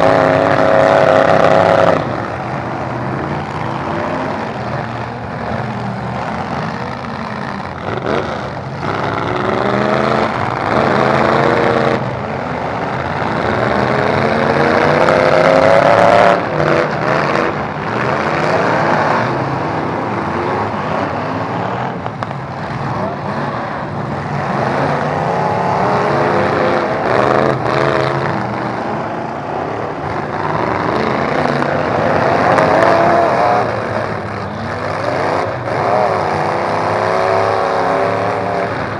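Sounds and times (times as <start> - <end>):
truck engines revving hard: 0.0 - 38.9.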